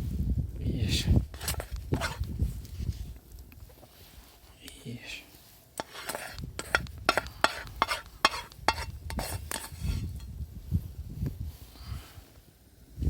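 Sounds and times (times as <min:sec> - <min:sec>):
utensil scraping food in pan: 0:01.3 - 0:02.3, 0:05.7 - 0:10.2.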